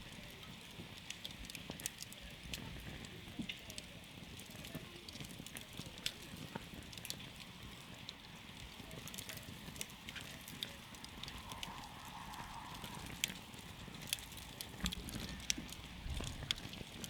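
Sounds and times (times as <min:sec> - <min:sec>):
campfire pops and snaps: 0:00.0 - 0:17.0
fire hiss and rumble: 0:00.0 - 0:17.0.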